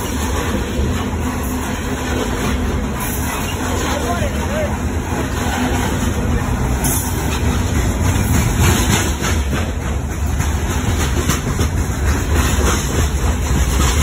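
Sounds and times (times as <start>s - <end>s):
train wheels rumbling on rail: 0.0s - 14.0s
wheels clicking over rail joints: 0.0s - 14.0s.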